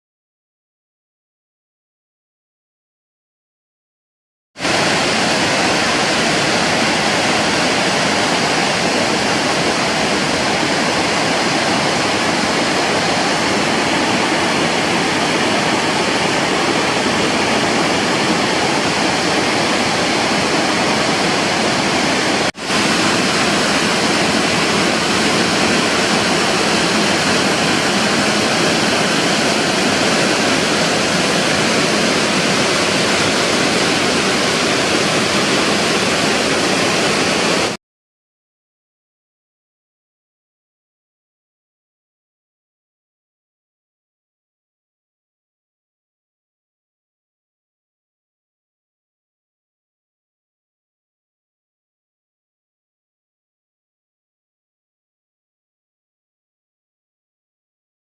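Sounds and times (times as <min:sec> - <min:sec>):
waterfall rushing: 0:04.6 - 0:37.8.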